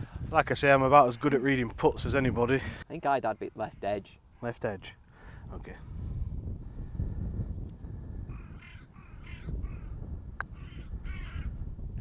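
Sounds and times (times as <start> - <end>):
bird cawing harshly: 8.3 - 9.9, 10.6 - 11.5.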